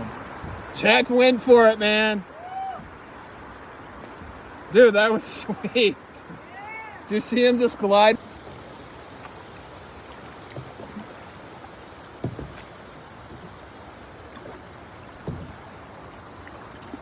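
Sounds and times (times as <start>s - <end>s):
creek water running: 0.0s - 17.0s
short dull knocks: 12.2s - 12.7s, 15.2s - 15.7s.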